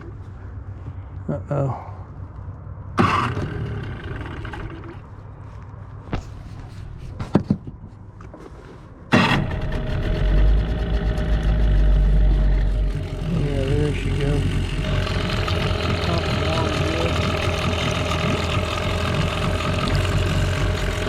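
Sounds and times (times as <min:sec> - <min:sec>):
outboard motor running: 0:03.0 - 0:05.1, 0:09.1 - 0:21.0.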